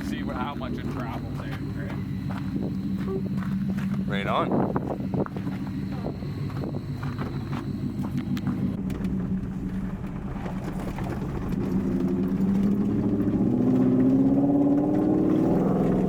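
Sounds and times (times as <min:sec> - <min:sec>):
pickup truck engine accelerating: 0:00.0 - 0:16.0.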